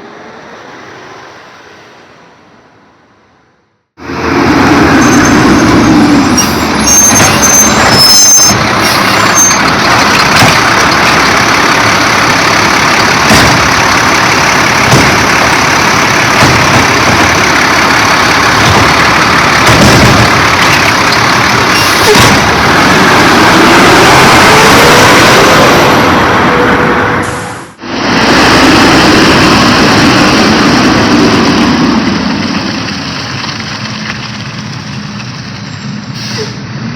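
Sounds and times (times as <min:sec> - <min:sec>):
garbage truck running: 0:04.0 - 0:36.4
high squeals: 0:04.9 - 0:10.1.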